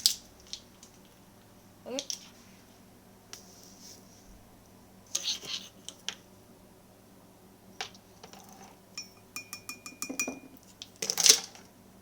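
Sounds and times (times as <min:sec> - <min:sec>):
spoon clinking against mug: 0:09.0 - 0:10.6.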